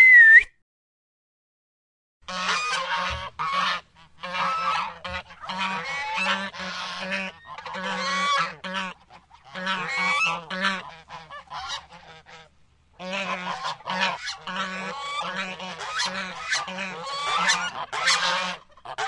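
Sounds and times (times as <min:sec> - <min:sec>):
flock of birds calling: 0:13.0 - 0:19.0.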